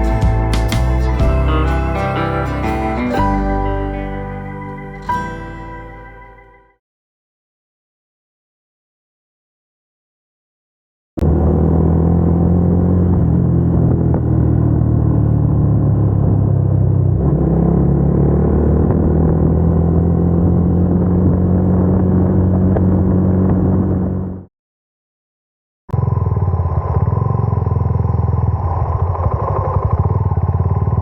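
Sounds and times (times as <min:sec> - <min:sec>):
motorcycle engine running: 0:11.2 - 0:24.5, 0:26.0 - 0:31.0.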